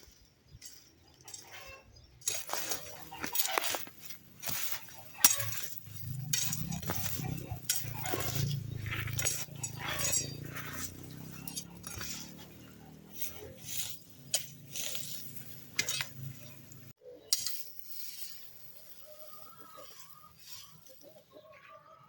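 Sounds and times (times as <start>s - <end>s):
utensils clinking against dishes: 2.2s - 16.6s.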